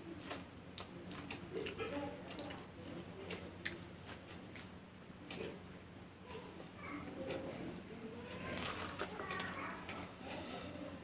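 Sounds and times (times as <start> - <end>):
person chewing popcorn: 0.2 - 4.7, 8.3 - 10.4.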